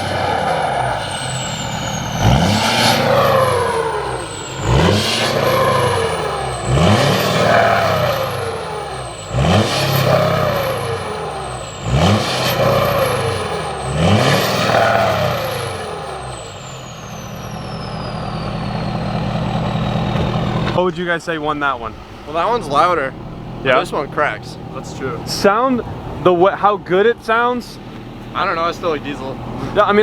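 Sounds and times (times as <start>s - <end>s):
high whistle gliding down: 0.0s - 23.2s
truck engine revving: 0.0s - 30.0s.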